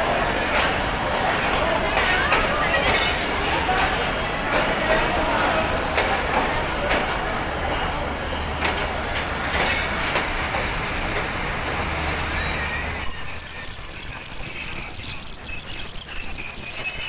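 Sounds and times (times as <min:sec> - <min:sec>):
train rumbling: 0:00.0 - 0:17.0
train brakes squealing: 0:07.7 - 0:17.0.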